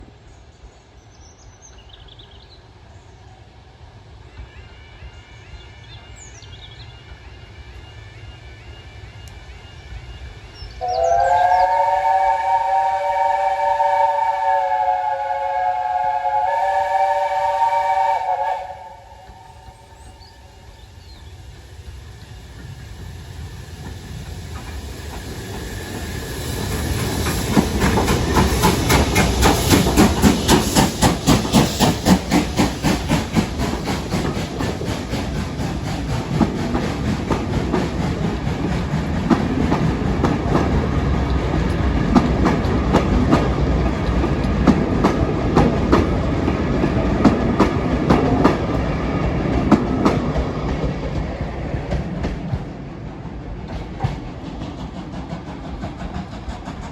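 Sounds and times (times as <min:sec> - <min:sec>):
train wheels clattering: 0:11.2 - 0:56.9
clacks: 0:26.7 - 0:48.9, 0:53.6 - 0:56.9.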